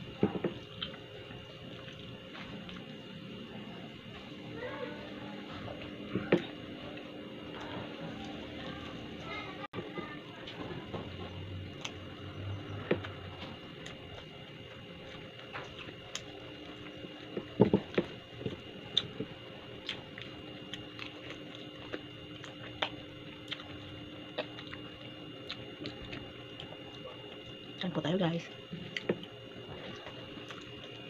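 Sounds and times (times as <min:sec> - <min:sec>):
faint steady hum: 0:00.0 - 0:31.0
person chewing: 0:00.2 - 0:04.4, 0:11.2 - 0:27.6, 0:28.7 - 0:31.0.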